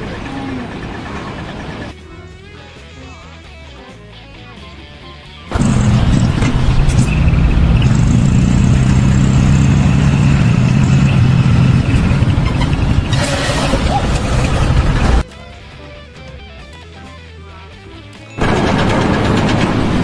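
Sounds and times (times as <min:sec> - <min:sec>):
heavy engine running loudly: 0:00.0 - 0:02.0, 0:05.5 - 0:15.2, 0:18.4 - 0:20.0.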